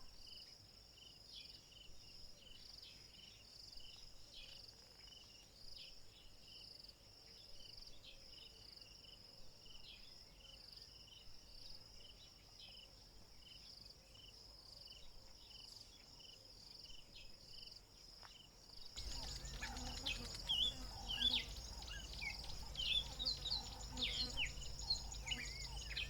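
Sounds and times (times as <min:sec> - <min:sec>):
insects chirring high trill: 0:19.0 - 0:26.0
lower short insect chirps: 0:19.0 - 0:26.0.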